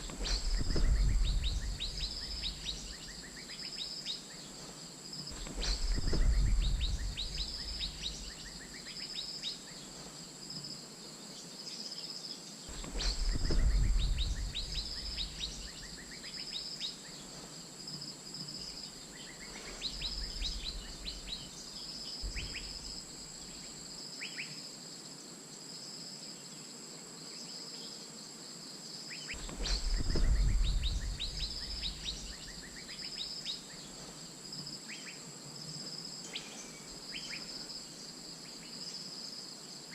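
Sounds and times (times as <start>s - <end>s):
wind rumble on microphone: 0.0s - 3.4s, 5.3s - 8.7s, 12.7s - 16.1s, 19.5s - 21.6s, 22.2s - 23.2s, 29.4s - 32.9s
birds calling in sweeping notes: 0.0s - 10.2s, 11.4s - 17.6s, 18.5s - 24.6s, 29.1s - 35.2s
high drone of insects: 0.0s - 39.9s.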